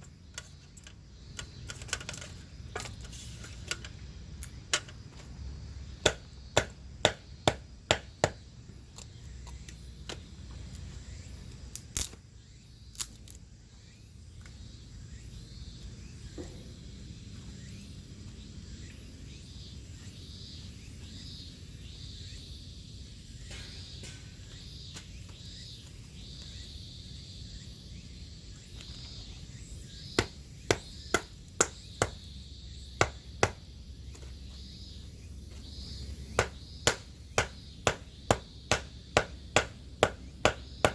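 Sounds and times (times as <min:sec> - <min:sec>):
blade chopping wood: 0:06.0 - 0:08.4, 0:30.2 - 0:32.3, 0:33.0 - 0:33.7, 0:36.4 - 0:40.9.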